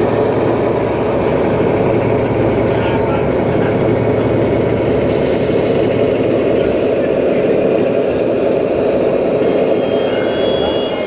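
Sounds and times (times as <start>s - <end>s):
faint high whines: 9.4s - 11.0s.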